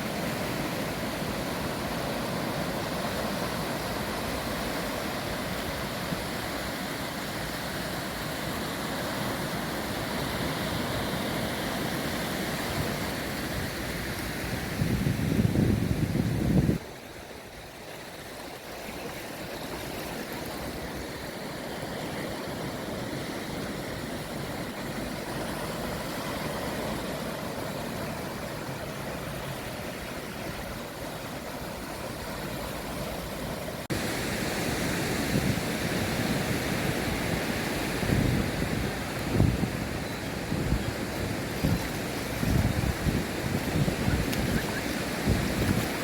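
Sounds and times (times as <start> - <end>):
ocean surf: 0.0 - 46.0
wind buffeting microphone: 12.8 - 16.9, 33.9 - 46.0.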